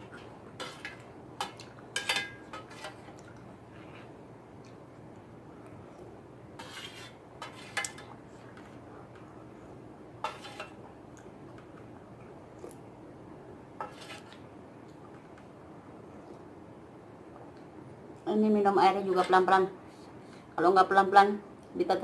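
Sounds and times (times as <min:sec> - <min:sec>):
cutlery clinking against a bowl: 0:00.6 - 0:03.3, 0:10.2 - 0:10.8.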